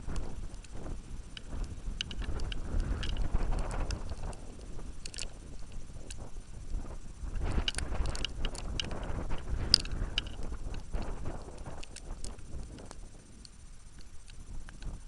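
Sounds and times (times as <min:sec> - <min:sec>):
wind buffeting microphone: 0:00.0 - 0:15.0
light ticks and taps: 0:00.1 - 0:06.3.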